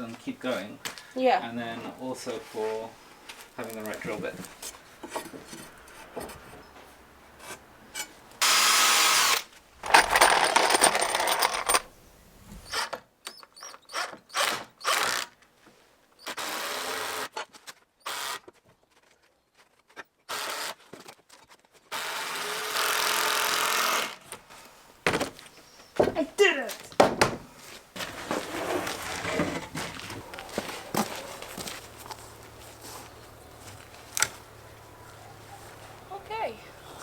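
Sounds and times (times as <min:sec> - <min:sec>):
power drill driving screws: 0:08.4 - 0:11.8, 0:13.9 - 0:15.3, 0:16.2 - 0:17.3, 0:18.0 - 0:18.5, 0:20.3 - 0:20.8, 0:21.9 - 0:24.2
knocks and clatter: 0:09.8 - 0:11.9.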